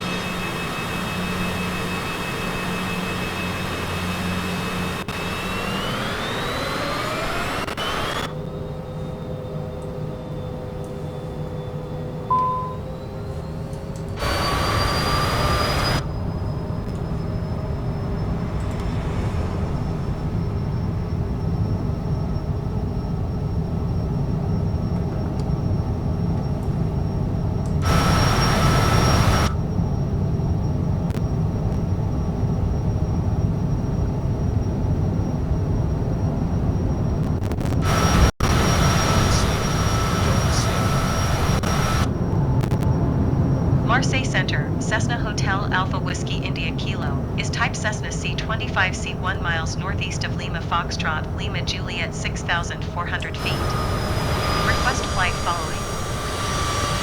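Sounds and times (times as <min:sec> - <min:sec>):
jet engines whining: 0:00.0 - 0:57.0
short beep: 0:12.3 - 0:13.2.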